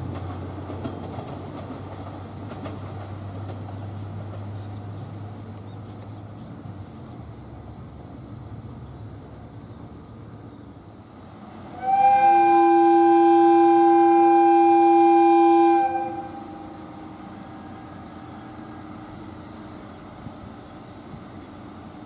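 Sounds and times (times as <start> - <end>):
two-tone train horn blast: 11.7 - 17.2.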